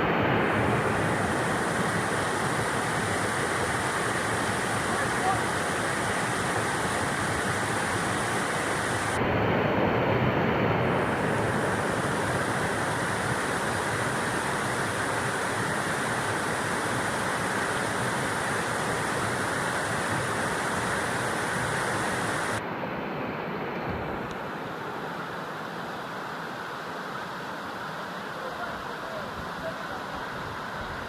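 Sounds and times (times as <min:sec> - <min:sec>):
water rushing over rocks: 0:00.0 - 0:22.6.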